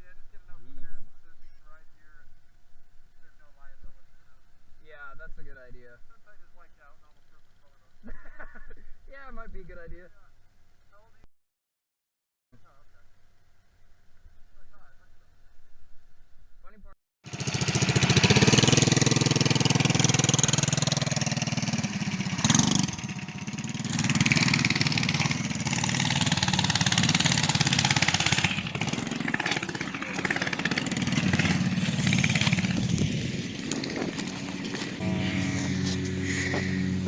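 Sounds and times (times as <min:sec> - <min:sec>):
minibike engine revving: 0:17.3 - 0:37.0.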